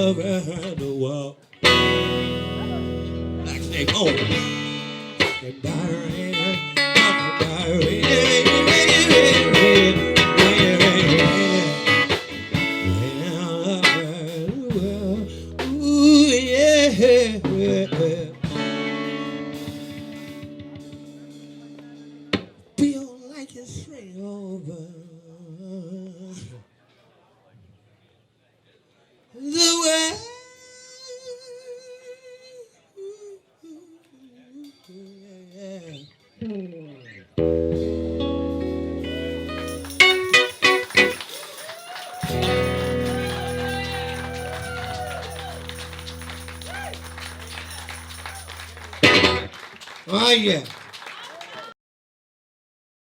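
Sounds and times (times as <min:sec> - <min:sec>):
blues guitar playing: 0:01.6 - 0:22.5, 0:36.4 - 0:49.7.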